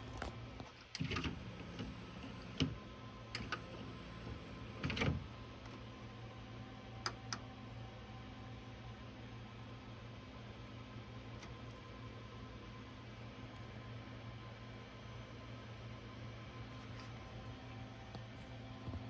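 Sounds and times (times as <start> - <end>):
steady low hum: 0.0 - 7.4
cd player mechanism clicks and clunks: 0.1 - 2.8, 3.4 - 5.8
small motor whining: 1.0 - 2.7, 3.4 - 5.1.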